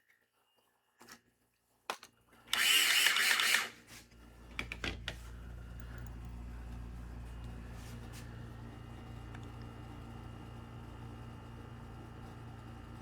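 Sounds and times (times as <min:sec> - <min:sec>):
slot car motor whirring: 0:02.5 - 0:03.8
low steady hum: 0:04.1 - 0:13.0.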